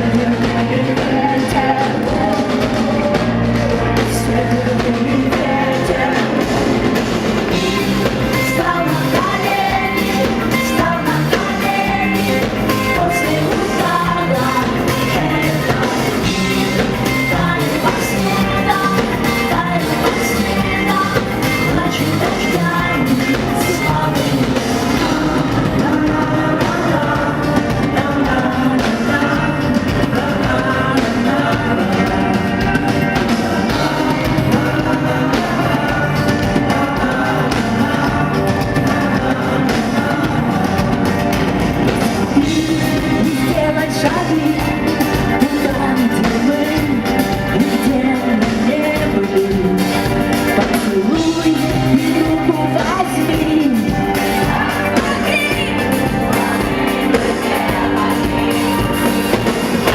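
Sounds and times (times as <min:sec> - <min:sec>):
live rock band playing: 0:00.0 - 0:59.9
woman singing: 0:00.0 - 0:59.9.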